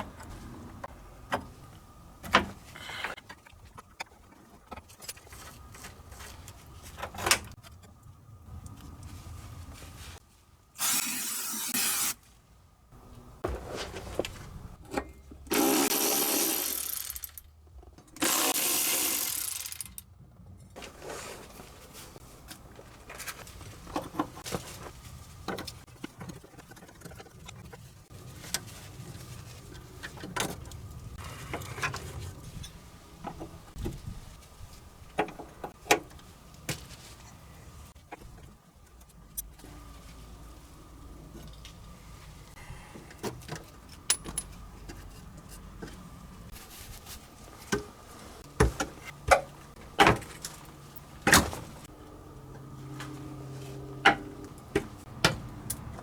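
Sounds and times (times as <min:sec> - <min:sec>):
power tool running: 0:10.8 - 0:12.2, 0:15.5 - 0:17.3, 0:18.2 - 0:19.9
tools clicking on metal parts: 0:14.9 - 0:20.1.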